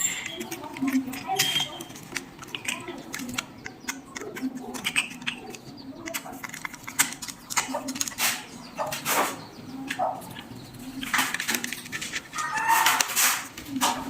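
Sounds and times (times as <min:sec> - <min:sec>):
small clicks and taps: 0:00.2 - 0:08.4.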